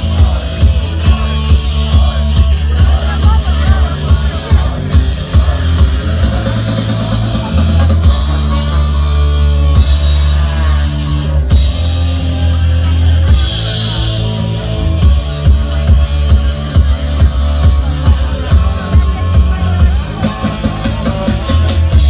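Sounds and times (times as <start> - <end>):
drum beat: 0.0 - 9.0, 15.0 - 22.0
distorted guitars and bass: 0.0 - 22.0.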